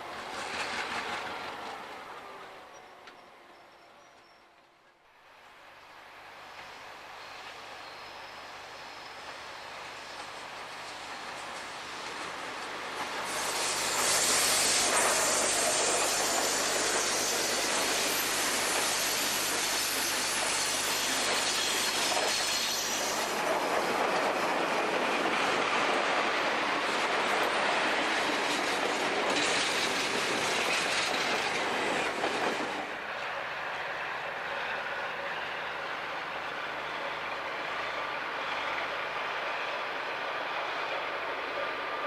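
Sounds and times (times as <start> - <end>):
train wheels on rails: 0.0 - 42.0.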